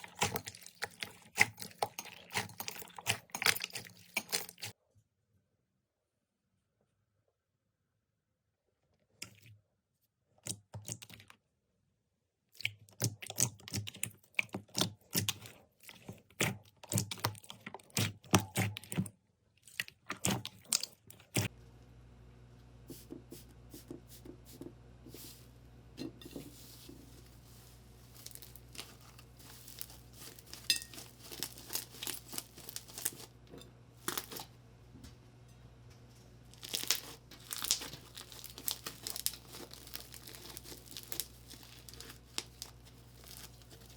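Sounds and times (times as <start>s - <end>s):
steady low hum: 21.5s - 36.6s
slime crackling and popping: 28.1s - 33.3s, 34.0s - 34.5s, 36.5s - 43.9s.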